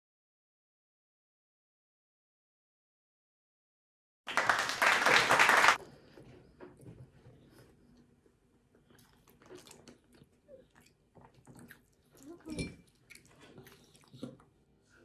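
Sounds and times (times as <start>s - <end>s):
chewing with wet mouth clicks: 8.8s - 14.5s.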